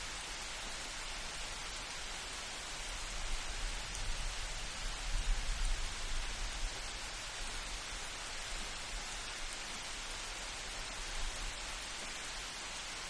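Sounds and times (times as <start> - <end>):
light rain hissing: 0.0 - 13.0.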